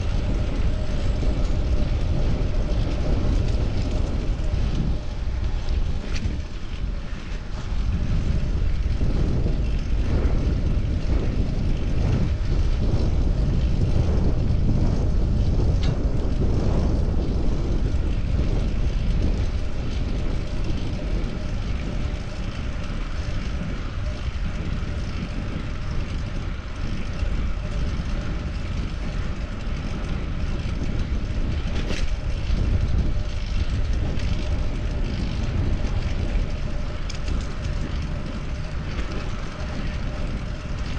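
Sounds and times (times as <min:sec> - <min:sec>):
bicycle road noise: 0:00.0 - 0:40.9
wind buffeting microphone: 0:00.0 - 0:40.9.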